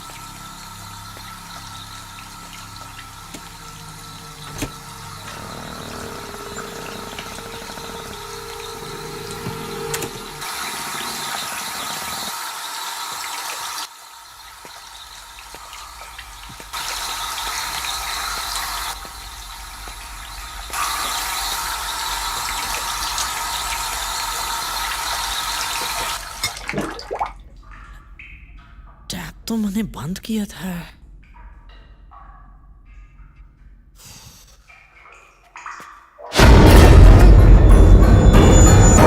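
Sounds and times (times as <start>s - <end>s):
water running from a tap: 0.0s - 28.3s.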